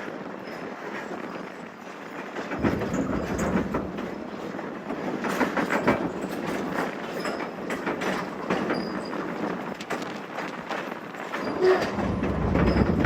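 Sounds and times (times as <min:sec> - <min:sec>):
train wheels clattering on track: 0:00.0 - 0:13.0
faint high squeal: 0:11.4 - 0:13.0.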